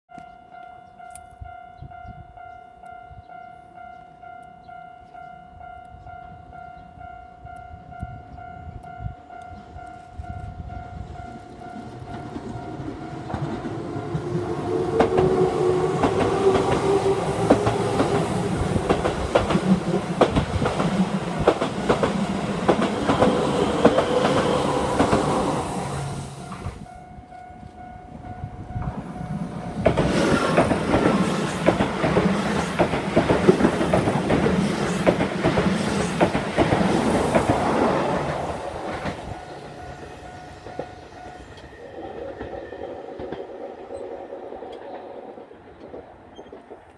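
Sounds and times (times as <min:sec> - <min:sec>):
level-crossing warning bell: 0:00.1 - 0:20.3, 0:21.0 - 0:29.9, 0:38.2 - 0:43.1
train running hum: 0:05.9 - 0:46.9
train wheels clacking over rail joints: 0:11.4 - 0:25.5, 0:29.8 - 0:39.4.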